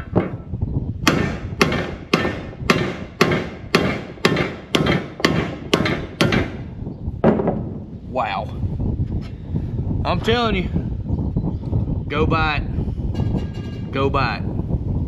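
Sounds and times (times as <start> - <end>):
hammer blows on metal part: 1.0 - 6.7.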